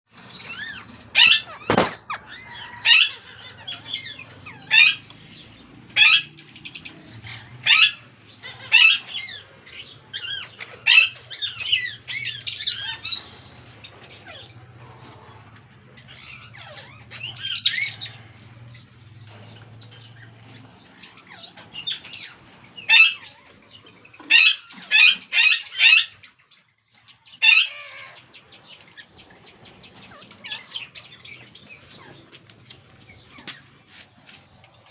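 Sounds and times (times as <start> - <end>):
parrots screeching: 0.3 - 5.1, 6.0 - 18.4, 20.9 - 26.3, 27.4 - 28.2, 30.0 - 32.2.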